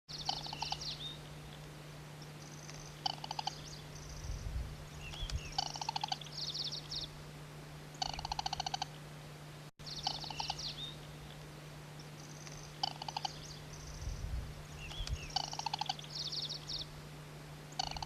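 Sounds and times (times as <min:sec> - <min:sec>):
bird rattling trills: 0:00.1 - 0:01.1, 0:02.4 - 0:04.3, 0:05.0 - 0:07.0, 0:07.9 - 0:09.0, 0:09.8 - 0:11.0, 0:12.1 - 0:14.2, 0:14.8 - 0:16.9, 0:17.7 - 0:18.0
high bird chirping: 0:00.1 - 0:01.2, 0:02.3 - 0:07.1, 0:08.0 - 0:08.9, 0:09.8 - 0:11.4, 0:12.1 - 0:16.9, 0:17.7 - 0:18.0
low hum: 0:00.1 - 0:18.0.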